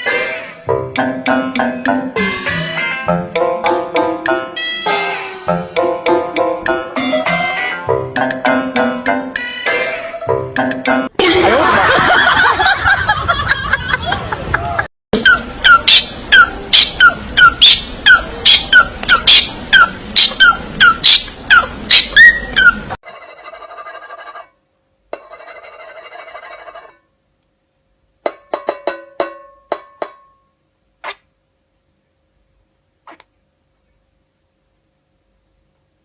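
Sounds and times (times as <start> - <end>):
parrot calling: 15.2 - 23.0.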